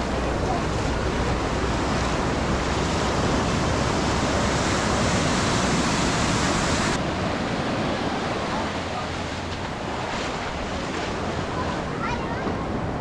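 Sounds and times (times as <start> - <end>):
wind on microphone: 0.0 - 9.0
ocean surf washing onto beach: 0.0 - 13.0.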